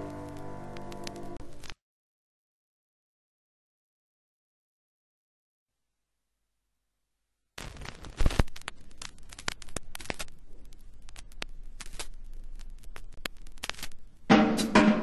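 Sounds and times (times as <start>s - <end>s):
irregular crackling and clicking: 0.0s - 1.8s, 7.6s - 14.3s
music with drum kit: 14.3s - 15.0s.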